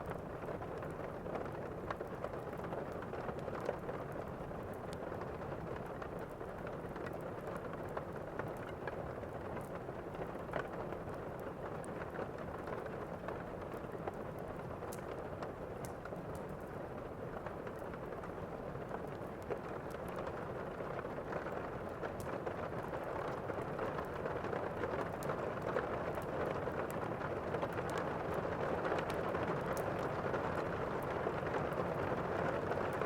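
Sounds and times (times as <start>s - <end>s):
faint clicks: 14.8s - 16.7s.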